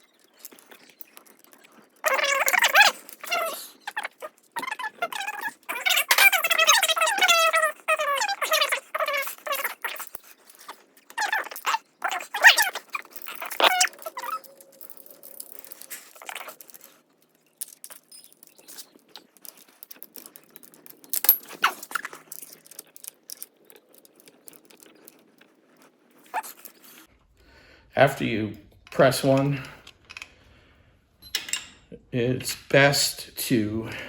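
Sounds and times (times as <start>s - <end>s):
dog whining and yelping: 1.6s - 17.0s, 19.4s - 27.0s.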